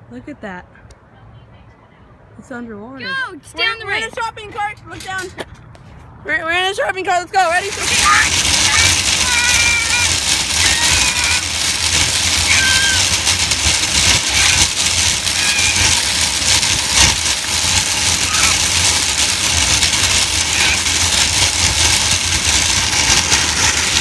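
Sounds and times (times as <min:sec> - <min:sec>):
shopping cart rattling over pavement: 0:03.6 - 0:05.6, 0:06.3 - 0:24.0.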